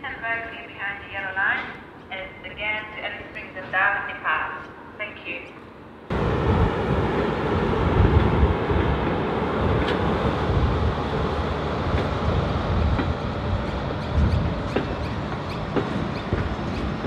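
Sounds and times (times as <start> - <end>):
train rumbling on rails: 2.9 - 17.0.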